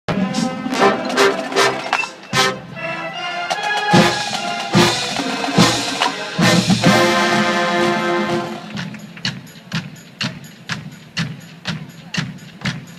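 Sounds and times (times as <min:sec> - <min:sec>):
brass horns playing: 0:00.1 - 0:08.9
drum hits: 0:03.6 - 0:12.9.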